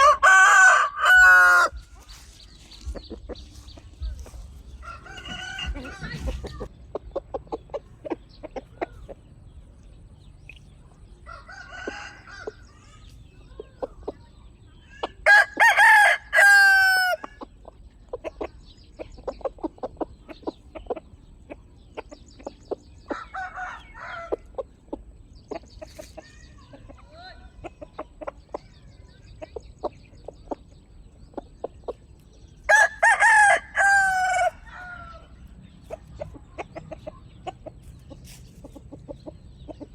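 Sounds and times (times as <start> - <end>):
rooster crowing: 0.0 - 1.8, 4.8 - 6.3, 11.2 - 12.8, 15.2 - 17.2, 23.2 - 24.4, 32.7 - 35.3
chickens clucking: 0.0 - 39.9.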